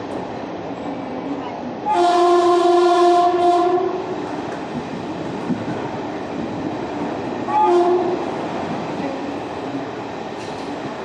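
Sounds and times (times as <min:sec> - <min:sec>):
moving train rumble: 0:00.0 - 0:11.0
train horn blast: 0:01.9 - 0:04.0, 0:07.4 - 0:08.2.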